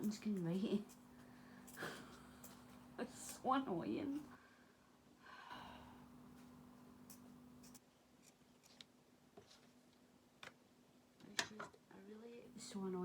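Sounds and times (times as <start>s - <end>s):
faint paper clicks and scratches: 7.6s - 10.6s.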